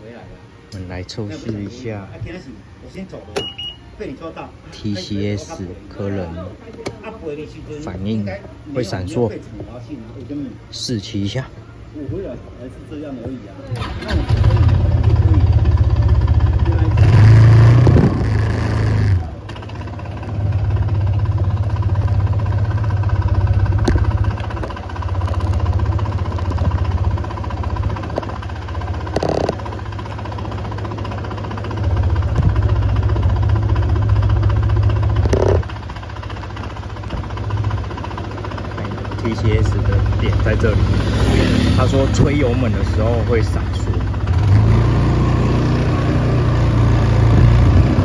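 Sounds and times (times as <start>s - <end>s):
scooter engine revving: 13.8s - 48.0s.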